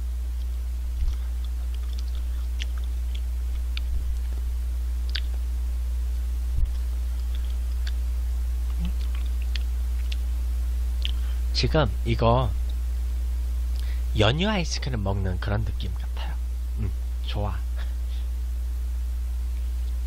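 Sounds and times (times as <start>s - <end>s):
low electrical hum: 0.0s - 20.0s
person chewing: 0.4s - 4.4s, 5.0s - 5.4s, 6.6s - 8.0s, 8.6s - 10.3s, 11.0s - 11.3s
soft low bumps: 3.5s - 4.5s.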